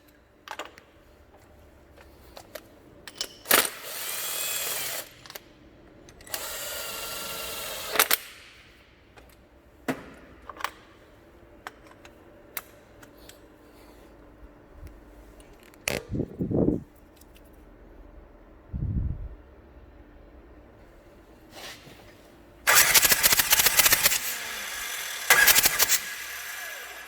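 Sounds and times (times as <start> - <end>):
power tool whirring: 3.7 - 5.1, 6.3 - 8.2, 22.7 - 27.0.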